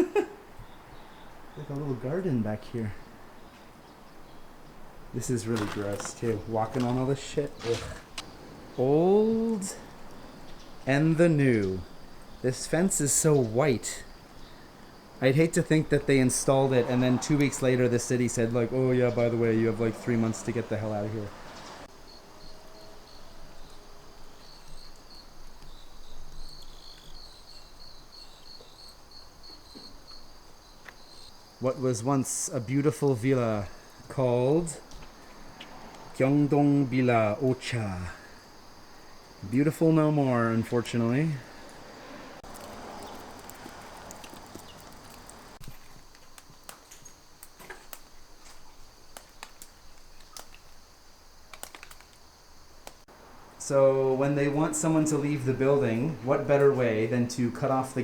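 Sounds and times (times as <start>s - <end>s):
crickets chirping: 0.0s - 58.0s
small clicks: 42.4s - 50.8s, 51.4s - 53.1s.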